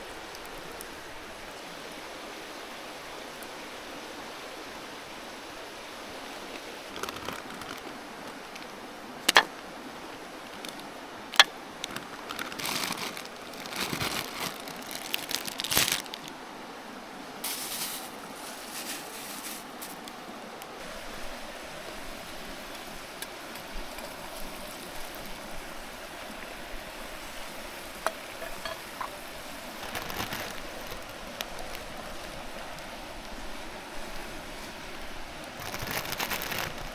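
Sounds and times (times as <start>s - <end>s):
river flowing: 0.0s - 36.9s
camp gear rustling: 6.4s - 16.4s, 17.4s - 20.8s, 27.7s - 33.0s, 34.1s - 36.9s
camp gear clicking and clinking: 6.6s - 9.7s, 10.4s - 16.3s, 28.0s - 31.9s, 35.5s - 36.9s.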